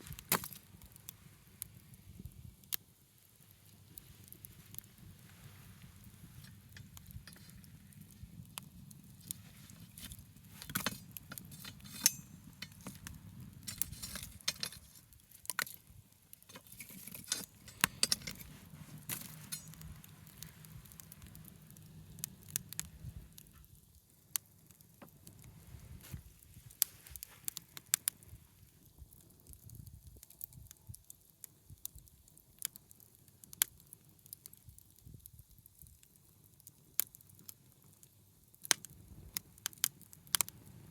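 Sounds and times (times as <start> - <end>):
low rush of flame: 0.0 - 24.0, 25.2 - 30.2
wood fire crackling and popping: 0.0 - 40.9.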